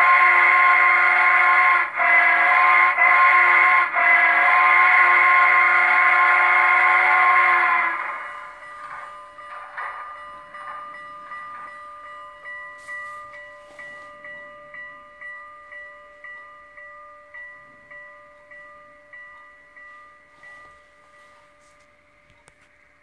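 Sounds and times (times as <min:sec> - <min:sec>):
locomotive bell ringing from small speaker: 0:06.1 - 0:22.3.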